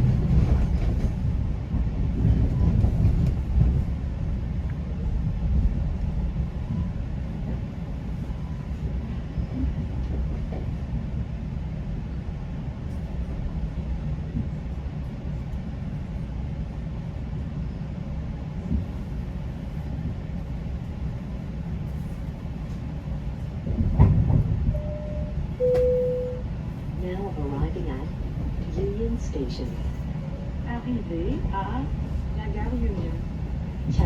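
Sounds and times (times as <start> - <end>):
train rumbling: 0.0 - 34.0
train clunk: 23.7 - 26.4
two-note falling chime: 24.8 - 26.4.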